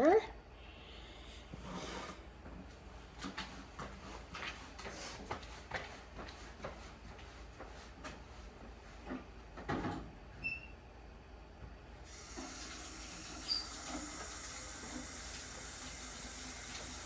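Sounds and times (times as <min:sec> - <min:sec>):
water running into a container: 0:12.0 - 0:17.0
short squeak: 0:13.4 - 0:14.0.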